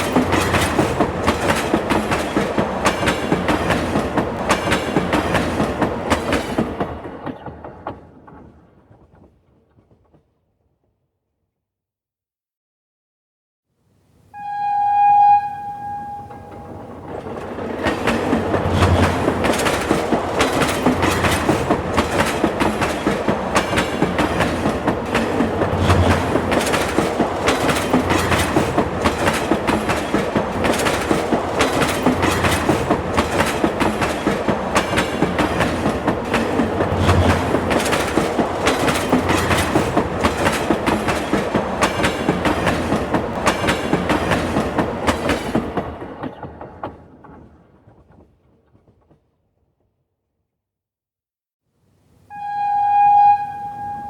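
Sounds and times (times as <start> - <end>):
train clickety-clack on rail joints: 0.0 - 10.6, 15.8 - 49.8
train horn blast: 14.3 - 17.0, 52.3 - 54.0.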